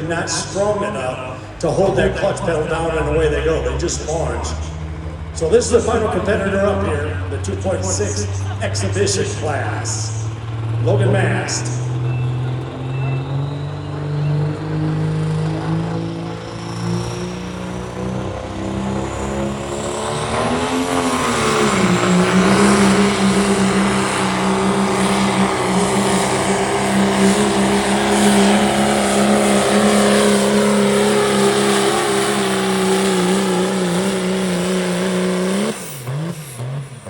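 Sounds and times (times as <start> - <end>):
diesel truck engine revving: 0.0 - 37.0.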